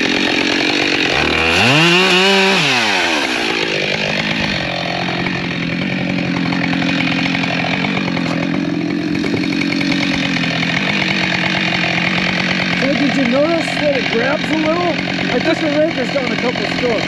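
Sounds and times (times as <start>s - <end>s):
chainsaw engine running: 0.0s - 17.0s.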